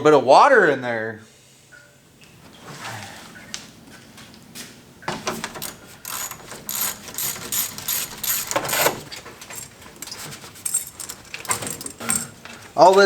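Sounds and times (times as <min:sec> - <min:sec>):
ratchet wrench clicking: 0:05.2 - 0:12.3.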